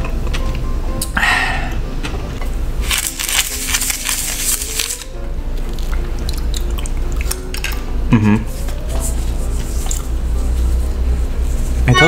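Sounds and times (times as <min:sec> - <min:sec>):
chewing and crunching food: 0:04.9 - 0:07.8.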